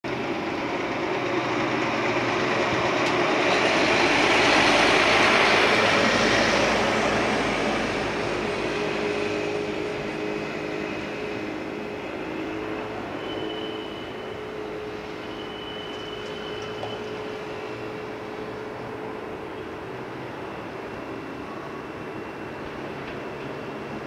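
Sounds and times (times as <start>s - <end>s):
train rumble and hiss: 0.1s - 24.0s.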